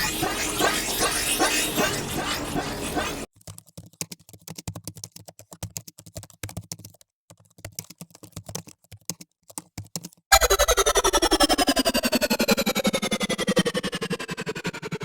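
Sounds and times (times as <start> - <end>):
rapid irregular clicks and taps: 3.0 - 10.3
loud music: 10.3 - 15.0.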